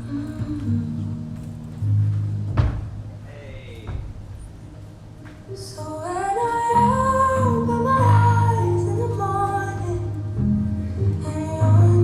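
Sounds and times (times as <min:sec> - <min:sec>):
woman singing: 0:00.0 - 0:01.7, 0:05.5 - 0:12.0
guitar: 0:00.0 - 0:03.2, 0:04.6 - 0:12.0.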